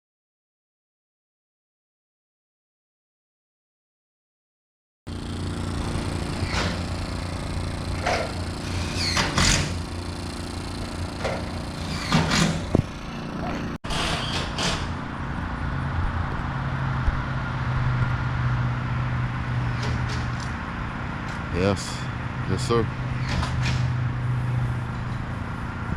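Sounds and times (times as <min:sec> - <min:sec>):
vehicle engine running: 0:05.1 - 0:13.8, 0:14.9 - 0:25.9.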